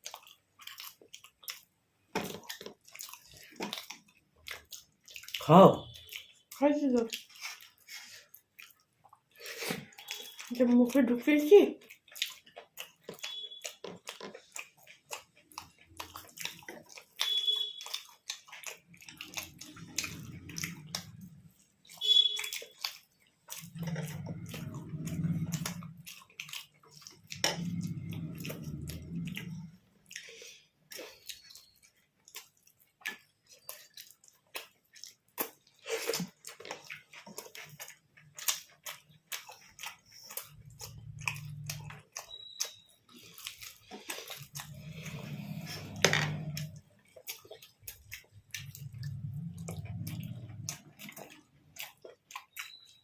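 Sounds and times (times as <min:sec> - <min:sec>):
people chewing soft food: 0:00.0 - 0:53.0
wet mouth clicks: 0:11.9 - 0:53.0
low humming: 0:23.6 - 0:26.1, 0:27.3 - 0:29.9.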